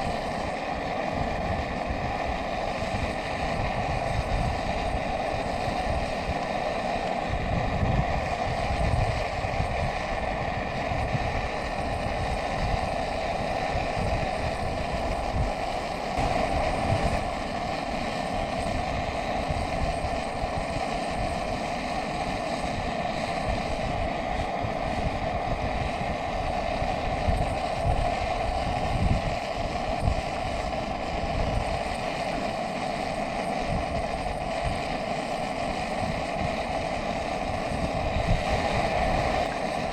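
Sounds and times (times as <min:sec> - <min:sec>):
wind buffeting microphone: 0:00.0 - 0:32.6, 0:33.6 - 0:39.9
wind rushing roar: 0:07.3 - 0:21.4, 0:36.0 - 0:39.9.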